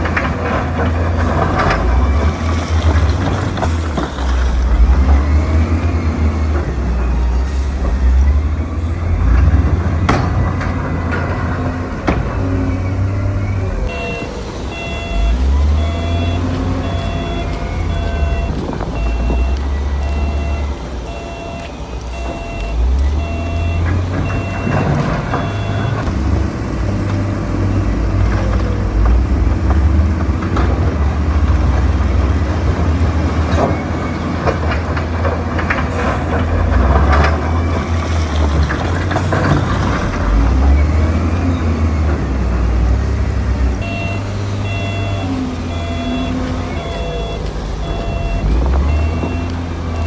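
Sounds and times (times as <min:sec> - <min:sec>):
knocks and clatter: 0:00.0 - 0:08.1, 0:09.2 - 0:12.8, 0:21.6 - 0:42.8
heavy machine engine running: 0:00.0 - 0:50.0
reversing alarm beeping: 0:12.4 - 0:26.1, 0:43.8 - 0:50.0.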